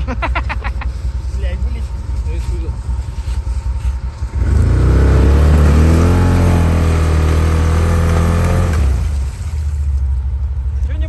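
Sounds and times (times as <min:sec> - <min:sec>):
quad bike engine revving hard: 0:04.3 - 0:09.5.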